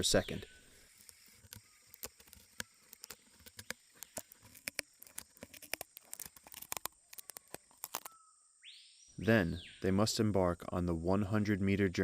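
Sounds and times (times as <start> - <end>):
ants cutting leaves clicking: 0.7 - 8.2.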